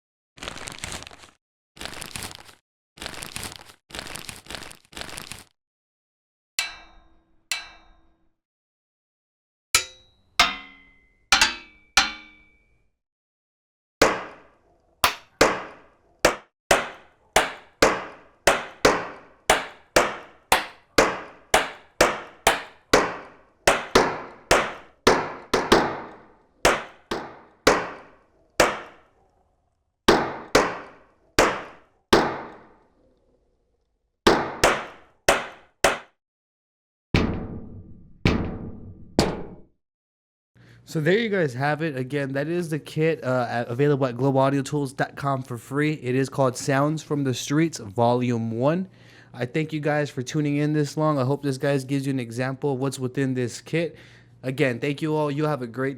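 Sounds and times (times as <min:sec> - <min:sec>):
clanging drum sample strikes: 0:09.8 - 0:12.6.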